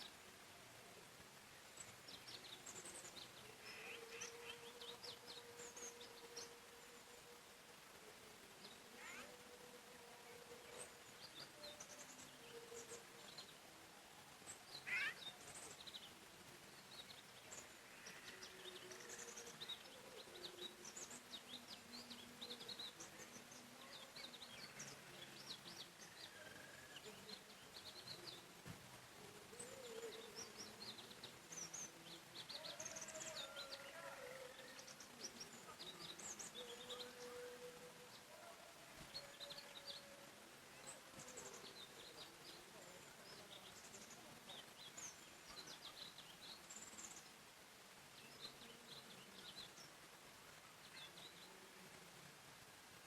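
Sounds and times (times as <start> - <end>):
lower longer bird calls: 0.0 - 52.0
small birds chirping and twittering: 0.0 - 53.0
loud rising bird call: 14.8 - 15.2.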